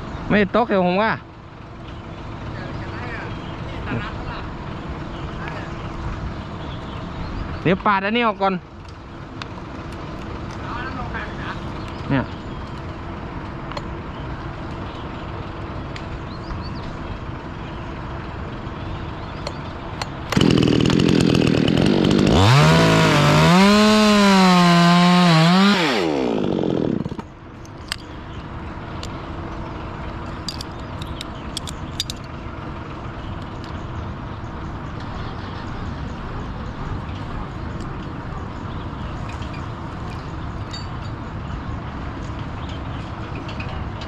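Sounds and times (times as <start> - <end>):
chainsaw cutting branch: 20.2 - 27.3.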